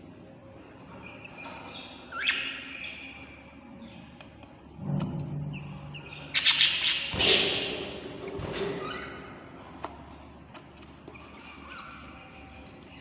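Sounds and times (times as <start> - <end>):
baby budgies chirping: 0.9 - 4.0, 5.5 - 7.8.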